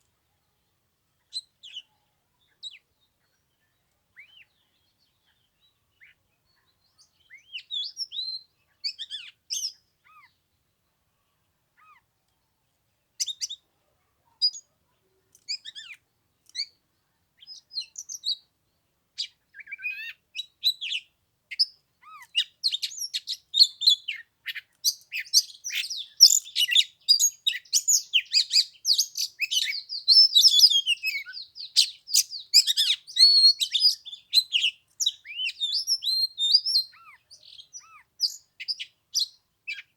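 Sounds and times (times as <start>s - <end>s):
bird singing whistles and chirps: 6.8s - 10.3s, 13.2s - 13.6s, 17.4s - 18.5s, 19.2s - 39.9s.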